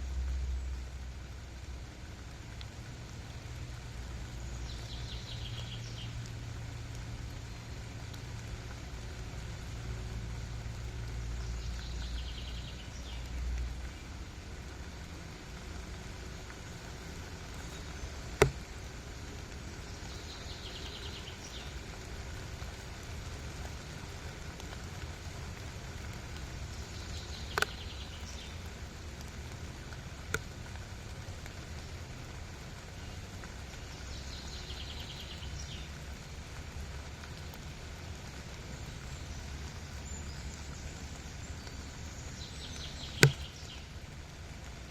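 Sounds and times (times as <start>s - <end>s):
steady rain falling: 0.0s - 44.9s
sharp clicks: 43.2s - 43.6s.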